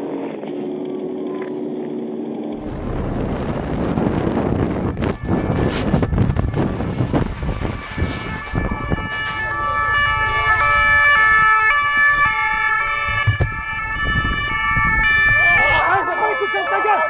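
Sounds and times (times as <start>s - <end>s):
wind and road rumble: 2.6s - 15.8s
police siren hi-lo pattern: 2.6s - 17.0s.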